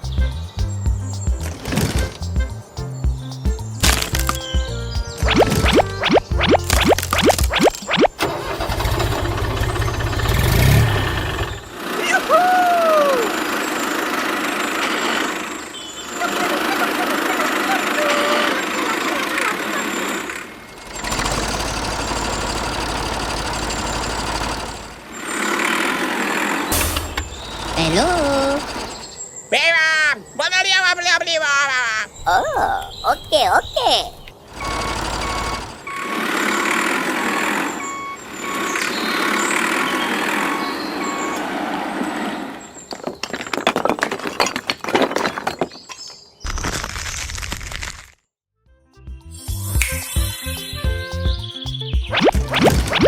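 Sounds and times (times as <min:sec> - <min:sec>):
engine idling: 0:08.2 - 0:12.4, 0:13.1 - 0:29.2, 0:34.5 - 0:41.3
truck reversing alarm beeping: 0:09.0 - 0:11.7, 0:19.7 - 0:25.1, 0:26.7 - 0:29.5, 0:34.5 - 0:43.0.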